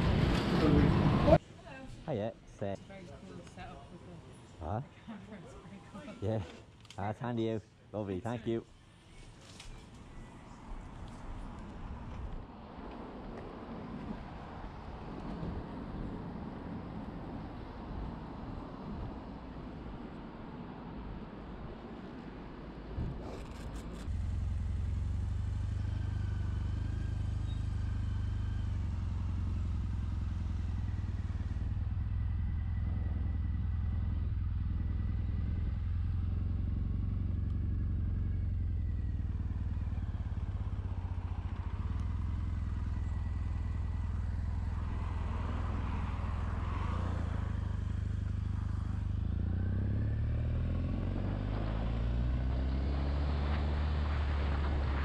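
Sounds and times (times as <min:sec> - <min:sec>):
motorcycle engine idling and revving: 0:00.0 - 0:01.4, 0:23.0 - 0:55.0.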